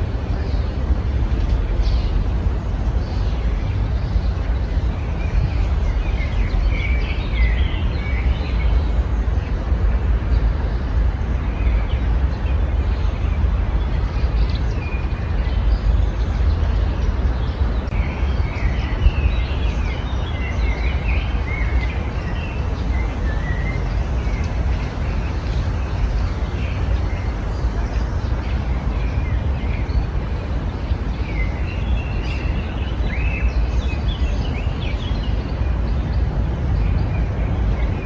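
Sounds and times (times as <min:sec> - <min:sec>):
birds chirping: 0:00.0 - 0:38.0
steady low rumble: 0:00.0 - 0:38.0.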